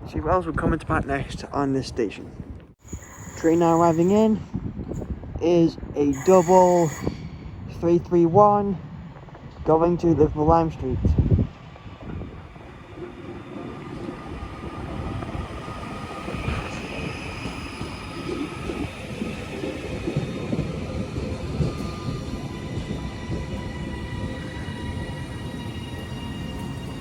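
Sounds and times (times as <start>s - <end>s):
high whining tones: 2.8s - 4.5s, 6.1s - 7.4s, 12.0s - 27.0s
train wheels rumbling on rail: 9.0s - 27.0s.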